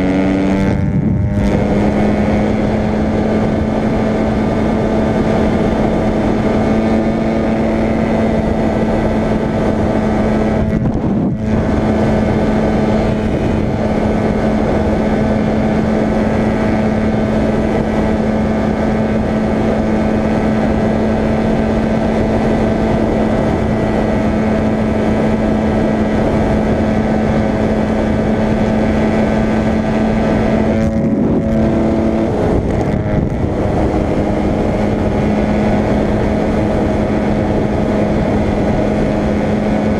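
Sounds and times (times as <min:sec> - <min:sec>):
motorcycle engine at high revs: 0:00.0 - 0:39.9
wind rush: 0:00.0 - 0:39.9.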